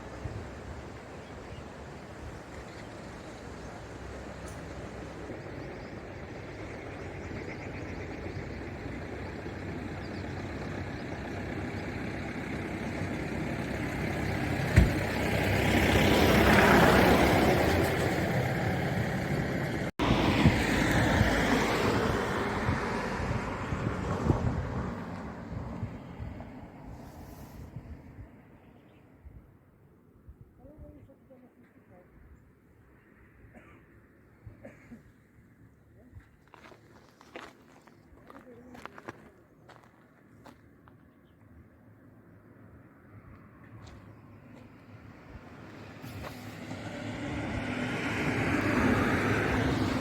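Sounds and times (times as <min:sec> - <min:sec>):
road vehicle rushing past: 0:00.0 - 0:28.8, 0:42.3 - 0:50.0.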